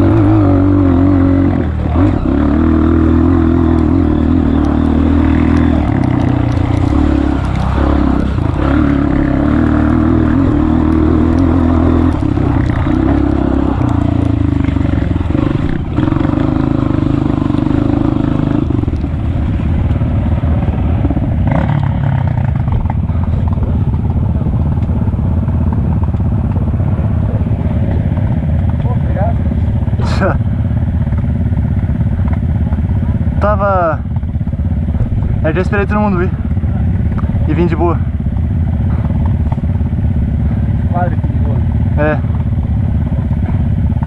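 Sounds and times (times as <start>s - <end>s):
motorbike engine running: 0.0s - 44.0s.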